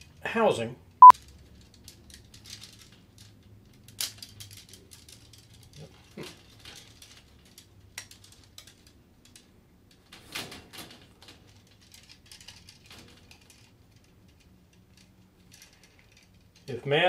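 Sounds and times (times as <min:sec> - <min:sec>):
clicks and rustles of handling: 0:01.2 - 0:16.9.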